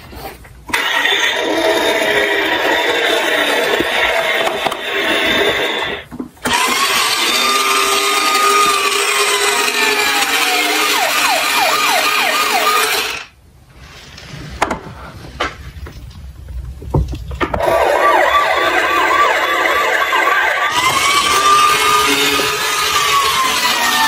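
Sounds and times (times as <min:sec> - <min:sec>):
siren wailing and yelping: 0:00.8 - 0:13.3, 0:17.6 - 0:24.0.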